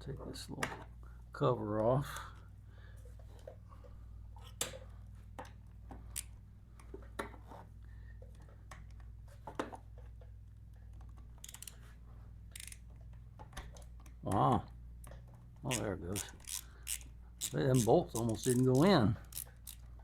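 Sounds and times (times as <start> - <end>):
hand tools clicking and tapping: 15.1 - 19.8.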